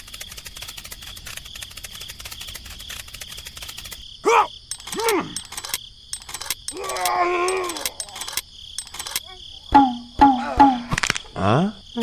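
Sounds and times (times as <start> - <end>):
crickets chirping: 0.0 - 12.0
voice-like calls: 4.2 - 5.6, 6.7 - 8.4.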